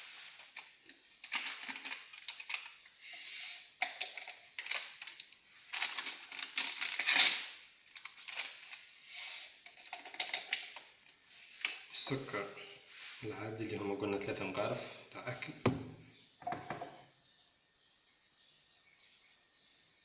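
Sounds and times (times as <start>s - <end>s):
paper crinkling and rustling: 0.0s - 2.8s, 4.2s - 8.9s
paper sachets tearing: 4.6s - 8.9s.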